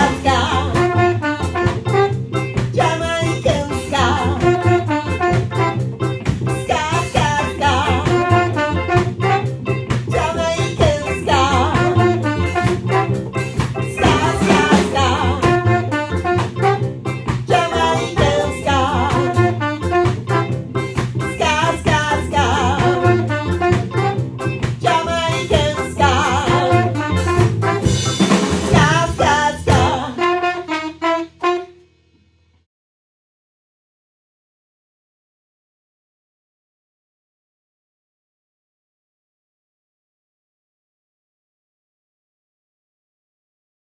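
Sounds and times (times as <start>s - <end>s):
double bass: 0.0s - 30.3s
drums with steady beat: 0.0s - 30.4s
ska band playing: 0.0s - 31.8s
horn section: 0.0s - 31.9s.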